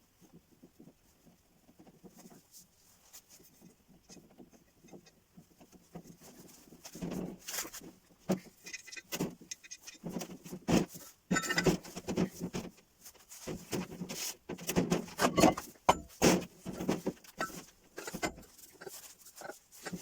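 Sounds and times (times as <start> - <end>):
metal tools clinking and rattling: 11.3 - 12.0, 15.1 - 20.0.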